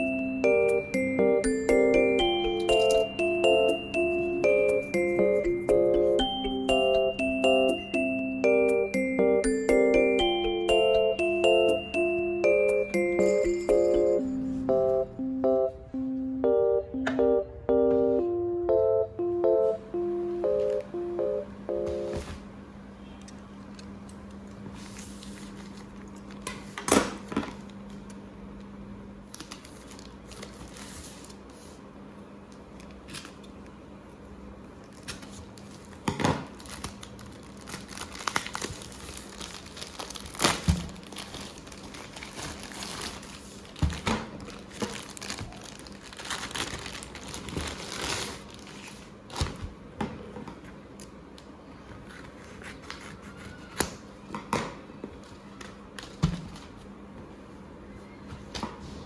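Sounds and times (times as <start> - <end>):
low steady hum: 0.0 - 24.6
plastic packaging crinkling: 34.9 - 49.6.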